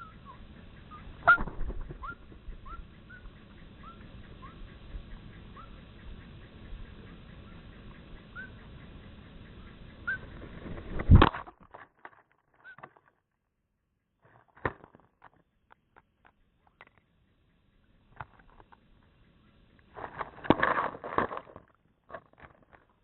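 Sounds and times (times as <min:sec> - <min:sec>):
small birds chirping: 0:00.0 - 0:10.8, 0:15.4 - 0:19.9
outdoor hiss: 0:00.0 - 0:11.3
faint clicks and ticks: 0:00.0 - 0:23.0.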